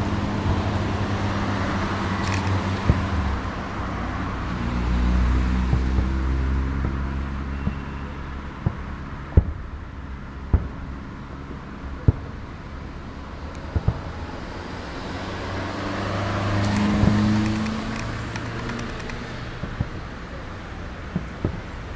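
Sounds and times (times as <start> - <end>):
vehicle engine humming: 0.0 - 21.9
fireworks bangs: 2.8 - 3.5, 5.6 - 15.6, 16.4 - 21.9.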